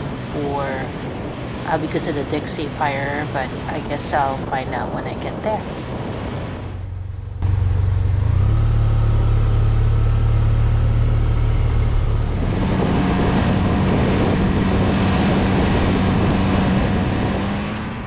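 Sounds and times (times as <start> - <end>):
wind rushing: 3.9 - 7.3, 11.5 - 18.0
motorcycle engine cruising: 6.3 - 18.0.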